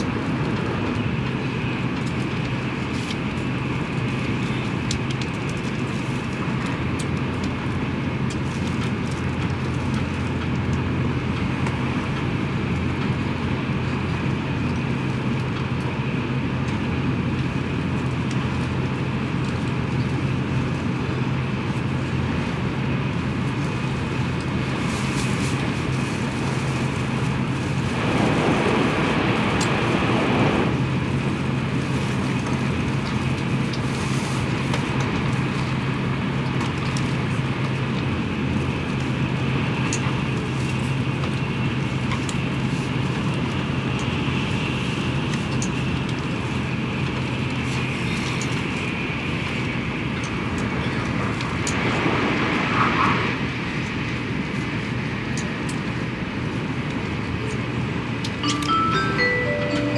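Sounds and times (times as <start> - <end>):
train cabin low hum: 5.8 - 59.9
rush of wheels and air: 24.6 - 33.0, 49.6 - 55.3.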